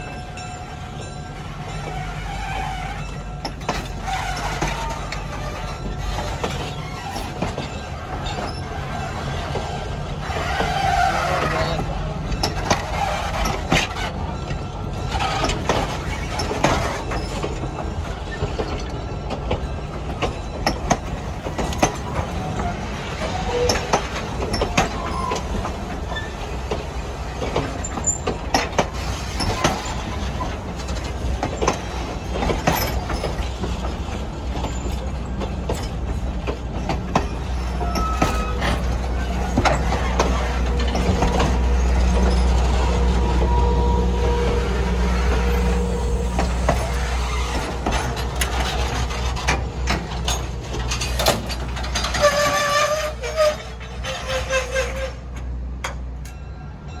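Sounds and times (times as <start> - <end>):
train wheels rumbling over rail joints: 0.0 - 57.0
wheel squeals: 0.0 - 57.0.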